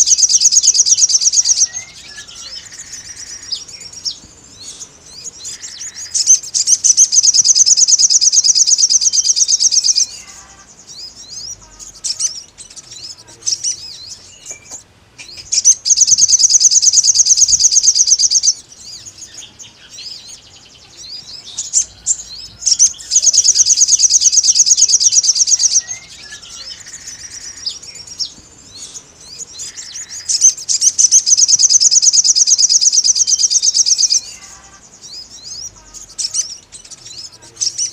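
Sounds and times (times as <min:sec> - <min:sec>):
soft bird chirps: 0:00.0 - 0:37.9
bird trilling high notes: 0:21.2 - 0:34.8.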